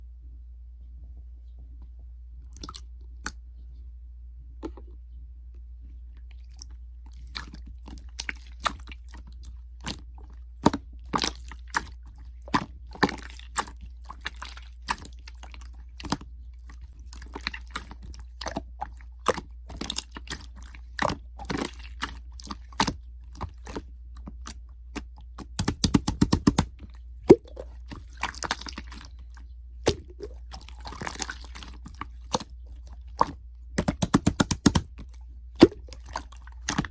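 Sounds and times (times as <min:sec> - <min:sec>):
steady low hum: 0:00.0 - 0:36.9
slime sticky clicks and crackles: 0:10.6 - 0:26.9, 0:29.8 - 0:36.9.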